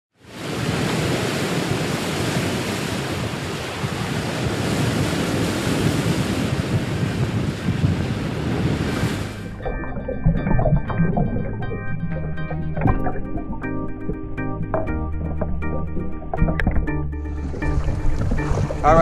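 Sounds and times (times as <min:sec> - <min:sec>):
ocean waves washing: 0:00.2 - 0:19.0
wind on microphone: 0:00.3 - 0:11.0.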